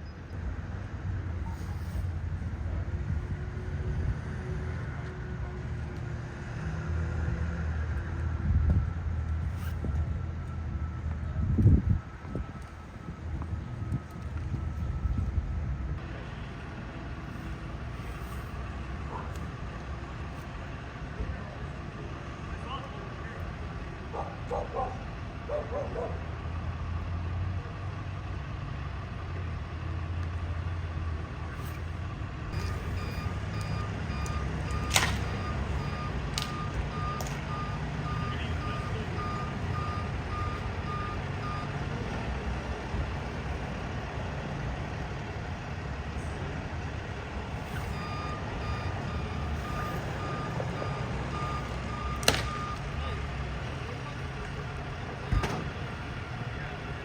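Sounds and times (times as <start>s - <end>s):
engine running: 0.0s - 57.0s
vehicle reversing alarm beeping: 8.4s - 16.0s, 17.2s - 27.9s, 32.5s - 42.4s, 47.2s - 57.0s.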